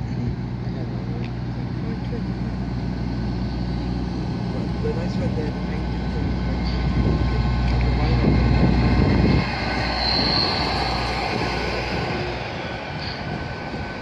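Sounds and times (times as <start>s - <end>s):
train rolling past with low hum: 0.0s - 14.0s
high-pitched squeal: 7.9s - 14.0s.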